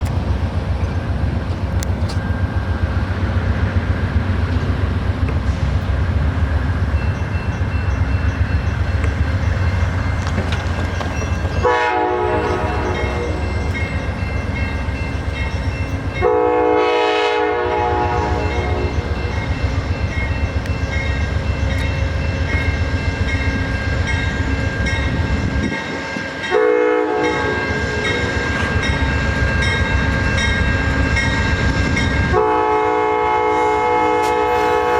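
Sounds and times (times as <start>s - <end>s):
train low rumble: 0.0s - 34.9s
locomotive horn blasts: 11.6s - 13.8s, 16.2s - 19.3s, 26.4s - 28.6s, 32.2s - 34.9s.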